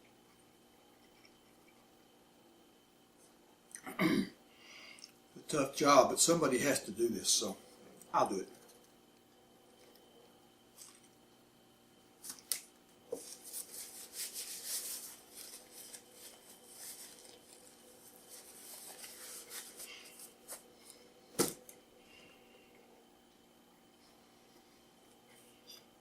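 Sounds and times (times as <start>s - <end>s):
wrapper paper crinkling: 12.2s - 20.6s.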